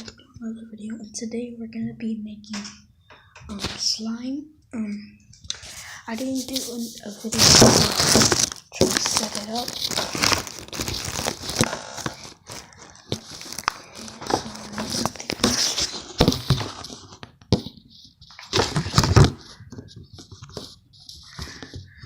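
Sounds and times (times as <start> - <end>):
plastic packaging crinkling: 5.5 - 22.0
small objects clicking and knocking: 7.4 - 22.0.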